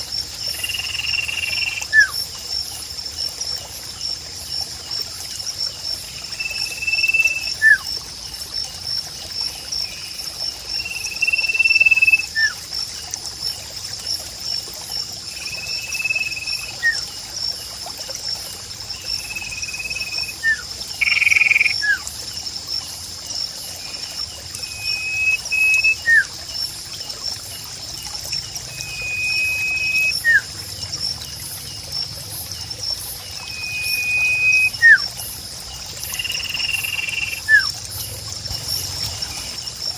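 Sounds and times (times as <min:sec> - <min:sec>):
bird whistling: 0:19.8 - 0:22.0, 0:24.6 - 0:26.3, 0:28.8 - 0:30.5, 0:33.4 - 0:35.0, 0:36.3 - 0:37.7.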